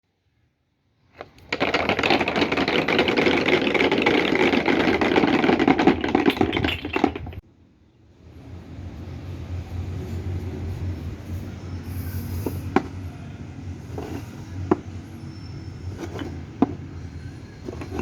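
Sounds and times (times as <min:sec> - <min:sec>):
balls clattering on wooden track: 0:01.2 - 0:07.4, 0:13.9 - 0:14.9, 0:15.9 - 0:16.9, 0:17.6 - 0:18.0
soft rolling rumble: 0:08.9 - 0:18.0.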